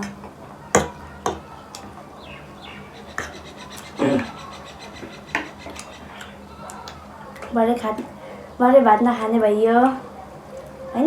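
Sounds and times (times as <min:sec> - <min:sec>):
utensils clicking against dishes: 0:04.9 - 0:07.5.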